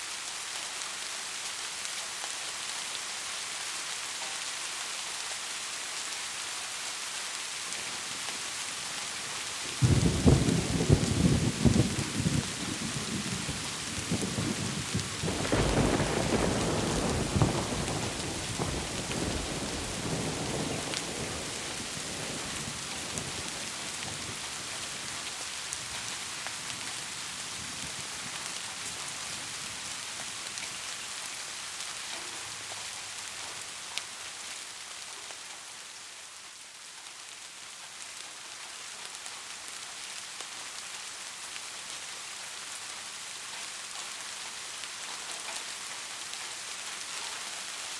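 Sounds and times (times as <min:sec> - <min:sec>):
heavy rain hissing: 0:00.0 - 0:47.9
thunder rolling: 0:09.8 - 0:23.4.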